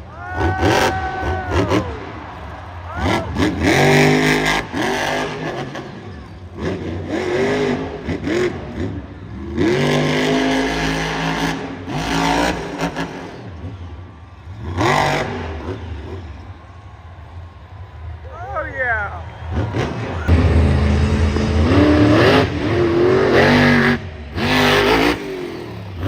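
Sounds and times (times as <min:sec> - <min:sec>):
monster truck engine revving: 0:00.0 - 0:26.0.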